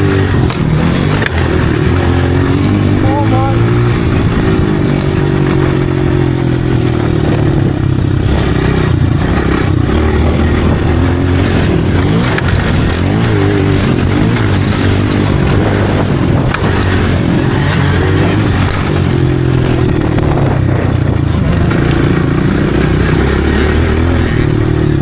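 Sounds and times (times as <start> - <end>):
dirt bike engine revving: 0.0 - 25.0.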